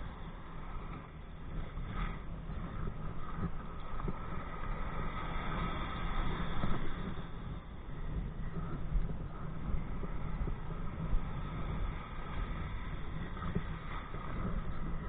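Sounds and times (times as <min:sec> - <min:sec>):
water rushing past kayak: 0:00.0 - 0:07.6
faint steady whine: 0:00.0 - 0:15.0
wind rumble on microphone: 0:00.0 - 0:15.0.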